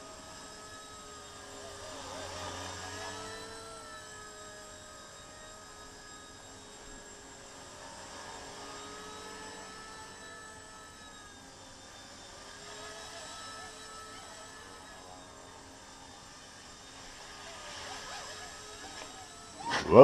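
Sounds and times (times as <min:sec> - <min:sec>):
toy helicopter motor whine: 0:00.0 - 0:20.0.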